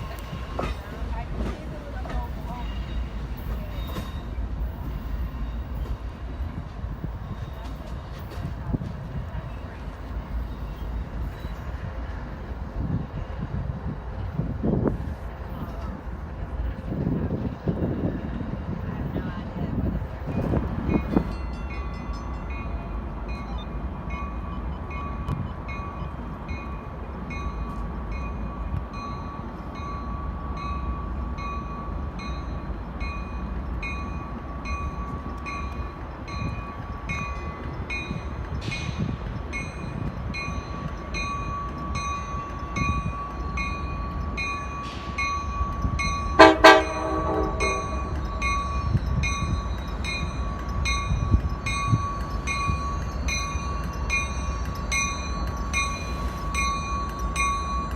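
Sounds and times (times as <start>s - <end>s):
train rumble: 0.0s - 57.9s
bell ringing: 41.2s - 57.9s
train horn blasts: 46.4s - 48.2s.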